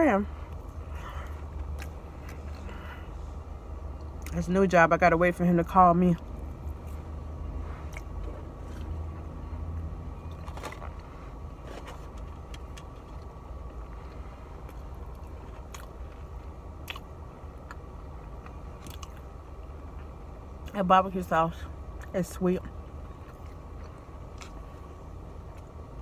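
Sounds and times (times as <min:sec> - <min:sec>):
car engine humming: 0:00.0 - 0:26.0
person chewing: 0:00.5 - 0:03.2, 0:06.2 - 0:09.3, 0:11.8 - 0:19.3, 0:23.0 - 0:25.8
wet mouth smacks and clicks: 0:16.8 - 0:17.8.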